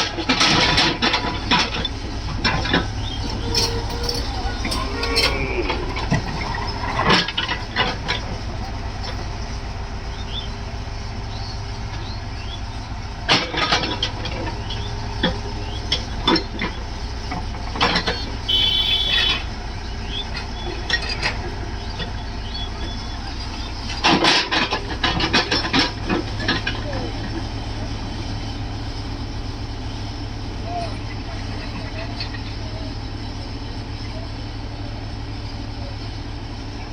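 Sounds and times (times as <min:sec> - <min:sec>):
metallic clanks and knocks: 0:00.0 - 0:09.8, 0:11.9 - 0:19.5, 0:20.1 - 0:28.6
diesel engine running: 0:00.0 - 0:36.9.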